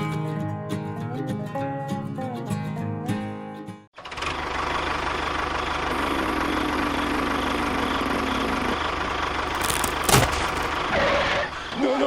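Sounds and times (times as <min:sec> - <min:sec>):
small engine idling: 0:04.0 - 0:12.0.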